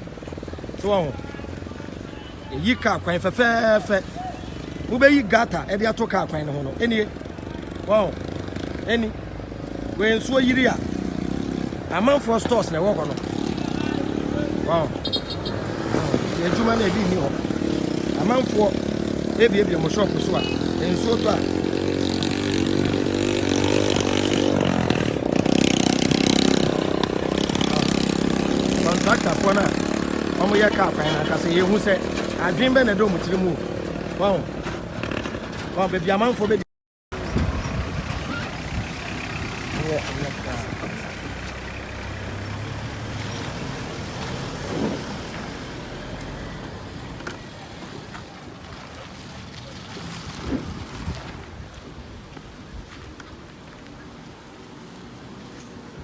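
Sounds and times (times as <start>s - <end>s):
vehicle engine revving: 12.8s - 34.3s.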